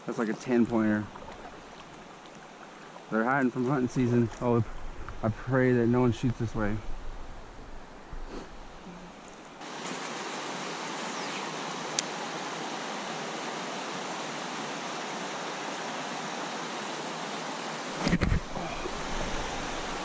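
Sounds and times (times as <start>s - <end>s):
river water rushing: 0.0s - 4.0s, 8.6s - 20.0s.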